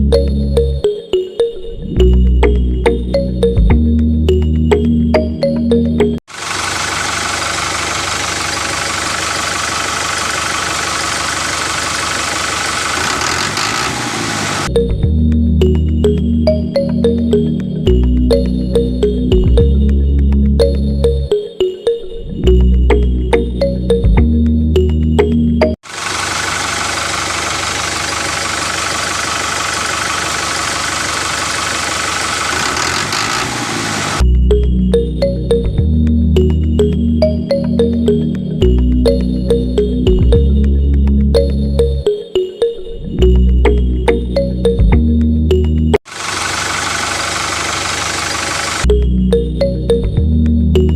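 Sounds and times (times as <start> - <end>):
motor chugging: 6.3 - 14.7, 25.9 - 34.2, 46.1 - 48.9
tractor engine idling: 6.3 - 14.7, 25.8 - 34.2, 46.1 - 48.9.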